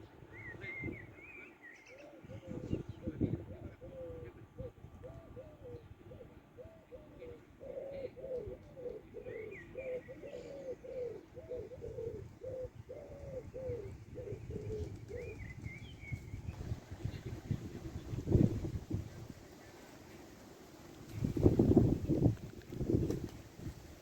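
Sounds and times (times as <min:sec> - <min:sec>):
dove cooing: 0:01.9 - 0:15.8.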